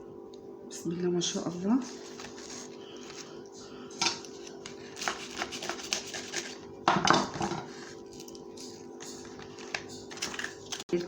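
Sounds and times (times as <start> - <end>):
faint steady hum: 0.0 - 11.0
kitchenware clatter: 6.8 - 7.8, 8.6 - 11.0
kitchenware clicks and taps: 6.9 - 7.7.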